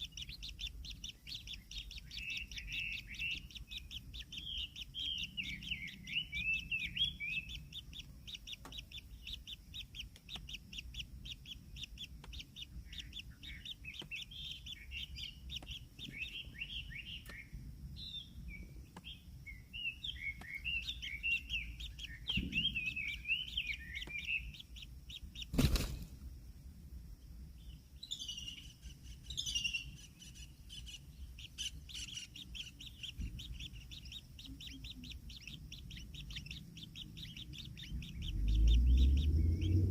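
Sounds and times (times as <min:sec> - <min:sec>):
chicks chirping rapidly: 0:00.0 - 0:26.0, 0:28.0 - 0:39.9.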